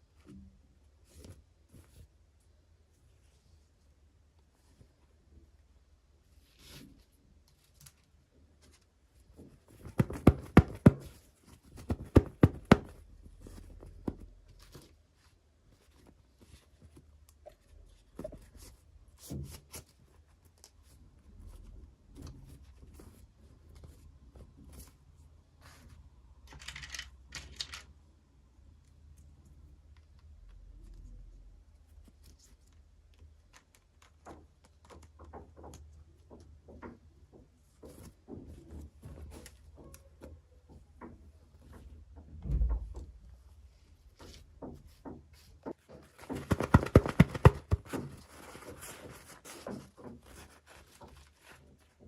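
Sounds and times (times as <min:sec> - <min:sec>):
small knocks and rustles: 0:06.2 - 0:28.0, 0:29.0 - 0:52.0
plastic packaging clicks and taps: 0:46.2 - 0:48.1.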